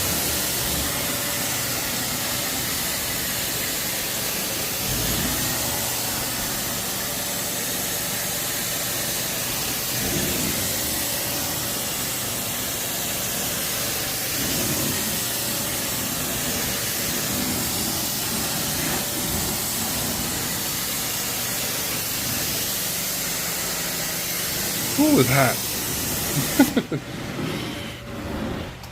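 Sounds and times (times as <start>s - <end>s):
spray and vacuum hiss: 0.0s - 28.9s.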